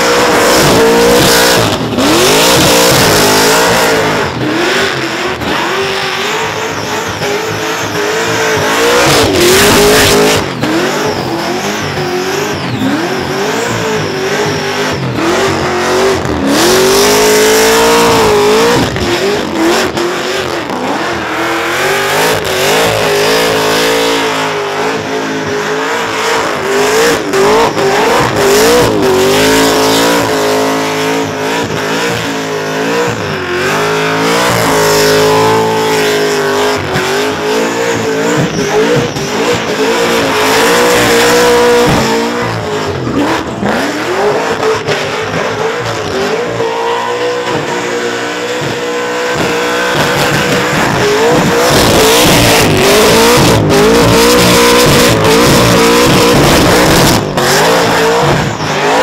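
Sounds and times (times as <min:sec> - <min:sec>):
car engine revving high: 0:00.0 - 0:59.0
tyres spinning and squealing: 0:00.1 - 0:59.0.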